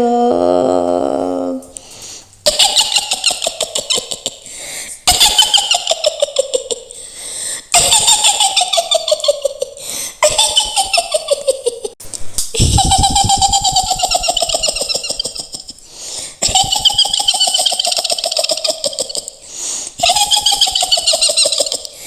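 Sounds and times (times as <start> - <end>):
high-pitched witch's cackle: 2.4 - 7.0, 7.7 - 12.0, 12.6 - 15.8, 16.4 - 19.4, 20.0 - 22.0.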